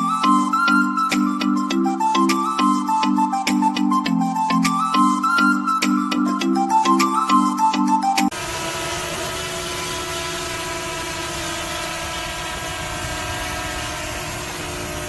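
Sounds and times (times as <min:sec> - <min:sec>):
motor humming: 0:08.3 - 0:15.0.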